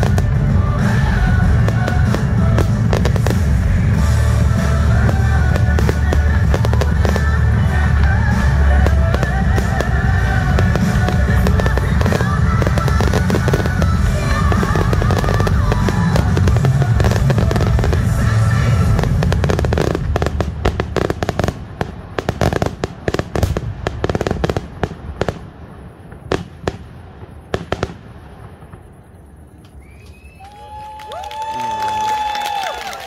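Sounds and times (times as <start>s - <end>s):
music: 0.0s - 21.6s
fireworks bursting and crackling: 0.0s - 33.0s.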